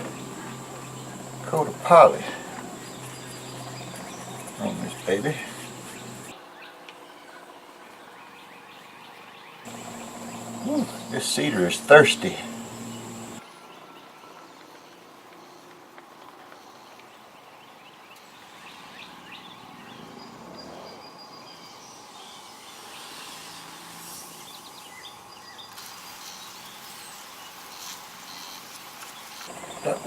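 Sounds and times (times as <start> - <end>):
insects: 0.0 - 6.4, 9.4 - 13.4, 18.1 - 30.0.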